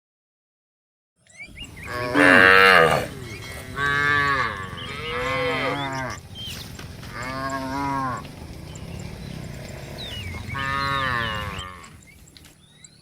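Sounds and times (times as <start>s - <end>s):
cattle mooing: 1.6s - 6.4s, 7.0s - 12.2s.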